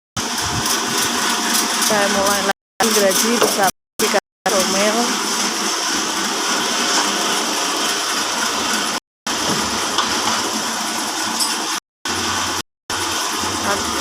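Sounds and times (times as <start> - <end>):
band saw whirring through timber: 0.2 - 3.7, 4.5 - 14.0.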